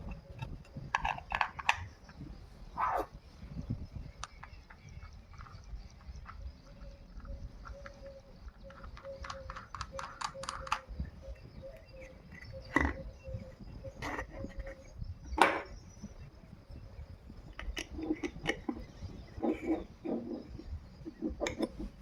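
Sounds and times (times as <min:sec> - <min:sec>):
light clicks and taps: 0:04.2 - 0:11.0.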